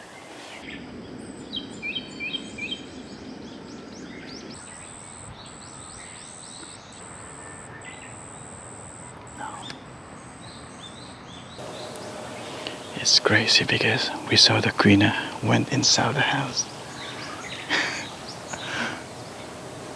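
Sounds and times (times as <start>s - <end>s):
birds chirping: 0.0s - 19.9s
high thin steady whine: 11.6s - 19.9s
short falling bird notes: 11.6s - 19.9s.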